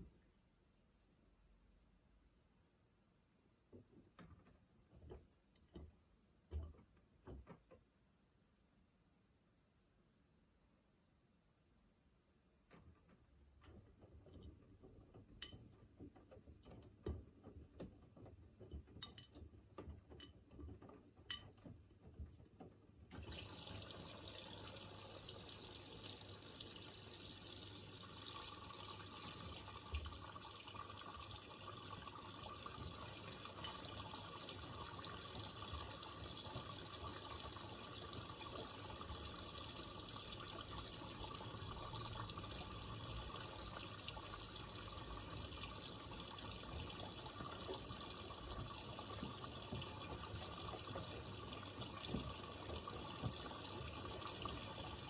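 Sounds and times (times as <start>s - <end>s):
water rushing into washing machine: 23.1s - 55.0s.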